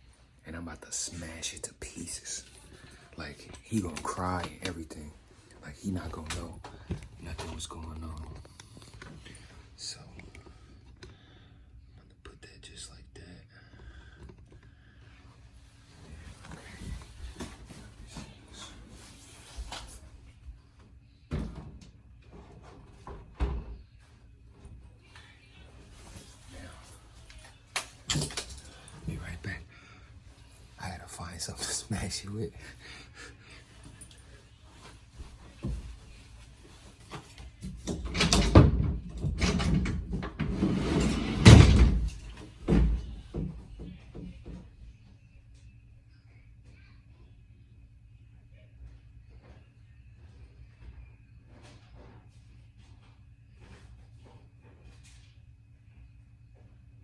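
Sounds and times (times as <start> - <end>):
door opening and shutting: 37.8 - 43.1.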